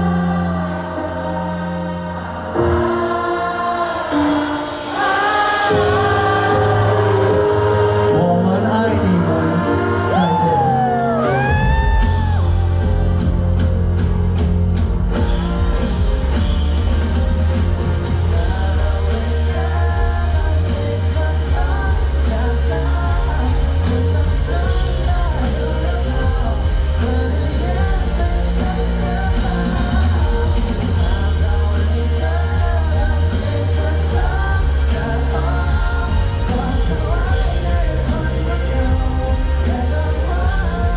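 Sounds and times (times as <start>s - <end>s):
person singing: 0.0s - 14.5s, 15.1s - 40.9s
live pop-rock band: 0.0s - 40.9s.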